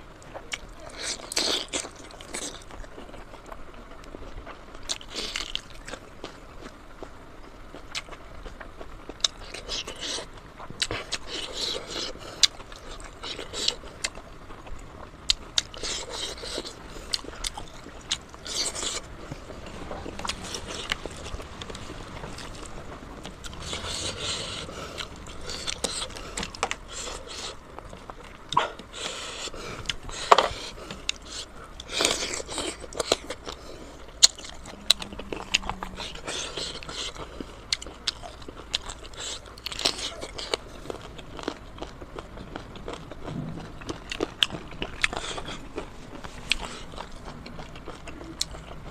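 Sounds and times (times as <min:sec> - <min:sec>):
biting and chewing meat: 0:00.0 - 0:48.9
mouth noises: 0:28.5 - 0:37.6.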